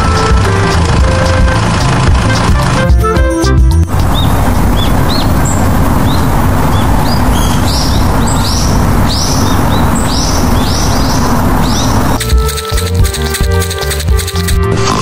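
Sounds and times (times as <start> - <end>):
loud rushing noise: 3.9 - 12.2
birds chirping: 3.9 - 14.6.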